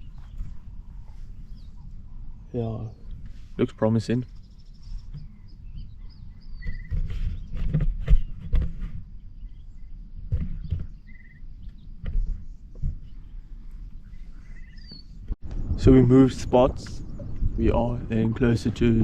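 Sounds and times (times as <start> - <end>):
bird chirping trills: 0.0 - 3.2, 3.8 - 15.3
low rumble: 11.4 - 19.0.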